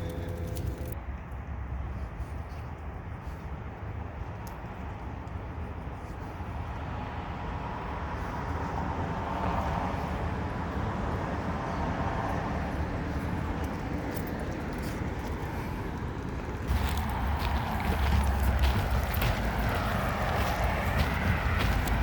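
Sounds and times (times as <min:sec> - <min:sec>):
traffic: 0:00.0 - 0:22.0
wind rumbling on microphone: 0:04.2 - 0:22.0
vehicle passing: 0:06.0 - 0:22.0.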